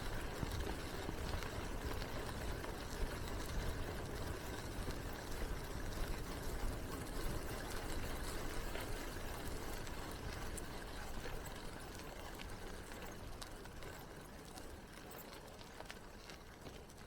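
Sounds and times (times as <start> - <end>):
bicycle tyres on path: 0.0 - 17.0.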